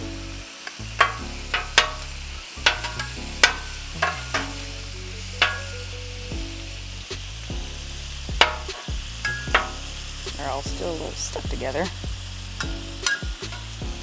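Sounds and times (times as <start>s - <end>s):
shrimp sizzling on griddle: 0.0s - 14.0s
metal spatulas clacking on griddle: 2.6s - 4.6s.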